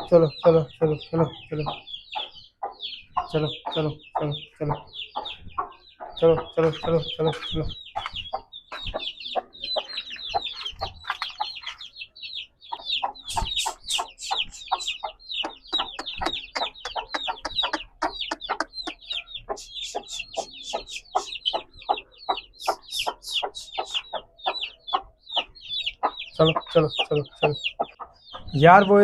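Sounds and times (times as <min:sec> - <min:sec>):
chicks peeping: 0:00.0 - 0:29.0
hen clucking: 0:00.0 - 0:29.0.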